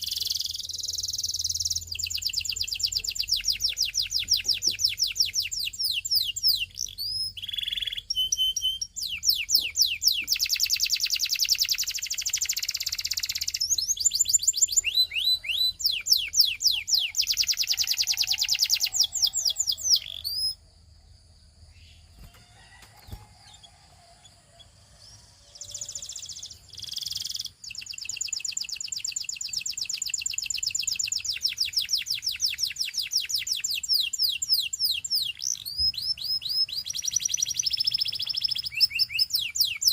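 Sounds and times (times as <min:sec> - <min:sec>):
canary trilling: 0:00.0 - 0:20.6, 0:25.4 - 0:39.9.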